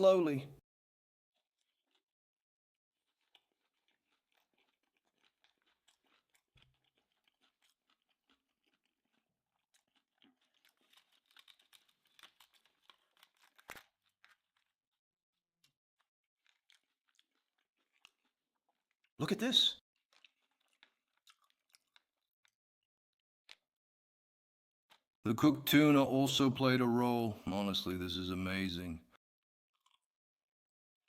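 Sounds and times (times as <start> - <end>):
chewing with soft crunches: 1.4 - 2.2, 2.8 - 23.8, 24.8 - 25.2, 29.7 - 30.2.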